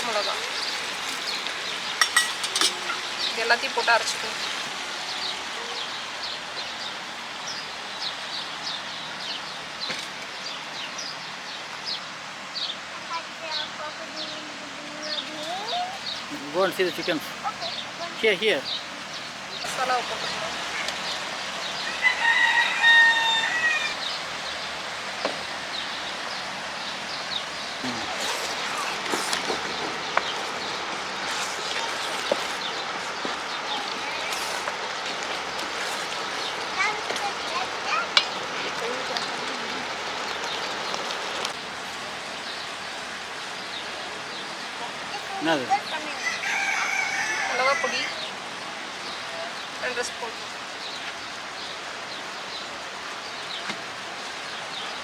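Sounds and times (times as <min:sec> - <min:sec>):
small birds chirping: 0:00.0 - 0:41.6
outdoor background hiss: 0:00.0 - 0:55.0
faint voices: 0:12.9 - 0:22.1, 0:27.8 - 0:42.4.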